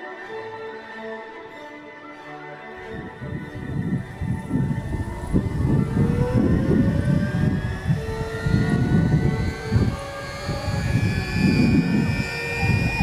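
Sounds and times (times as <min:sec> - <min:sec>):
helicopter rotor noise: 0:02.8 - 0:13.0
turbine whine rising in pitch: 0:02.8 - 0:13.0.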